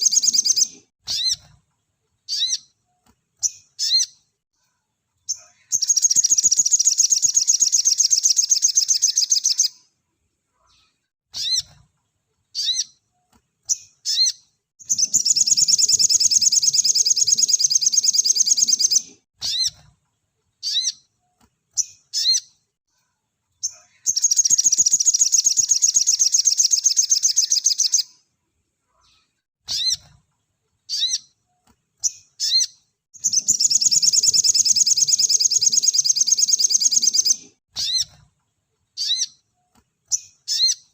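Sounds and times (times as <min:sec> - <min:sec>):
bird singing high trill: 0:14.1 - 0:19.7, 0:32.4 - 0:38.2.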